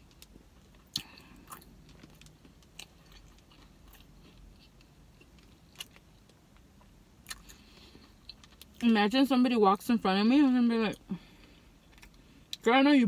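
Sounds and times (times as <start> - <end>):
faint mouth-closed chewing: 0.8 - 8.8.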